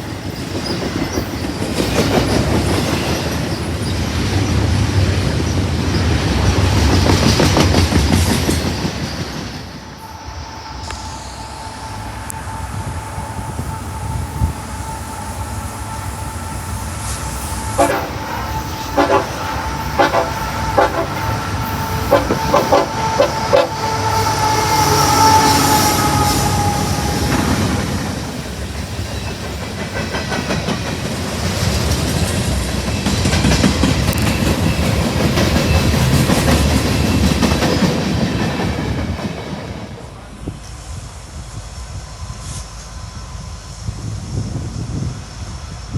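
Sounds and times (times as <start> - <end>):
train cars rumbling and clattering: 0.0 - 45.9
train horn blasts: 10.0 - 28.1.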